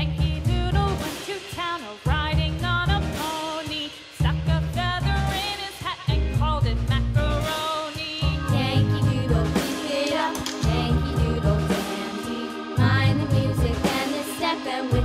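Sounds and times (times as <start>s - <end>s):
upbeat background music: 4.2s - 15.0s.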